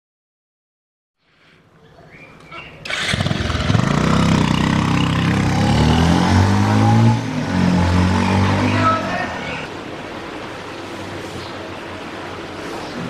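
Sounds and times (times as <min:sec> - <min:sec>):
motorcycle engine: 0:02.8 - 0:09.7.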